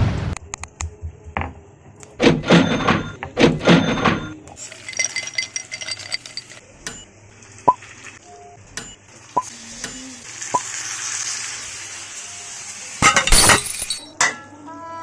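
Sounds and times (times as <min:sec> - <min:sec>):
soft sizzle: 0:04.6 - 0:13.2.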